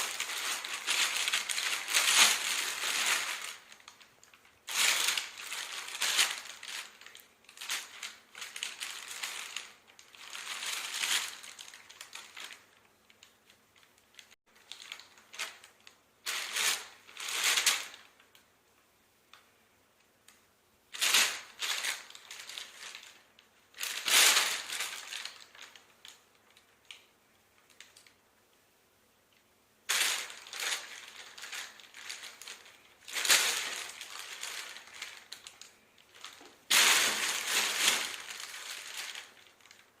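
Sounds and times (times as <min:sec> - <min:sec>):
bag rustling and crinkling: 0:00.0 - 0:13.0, 0:21.0 - 0:26.7, 0:29.9 - 0:40.0.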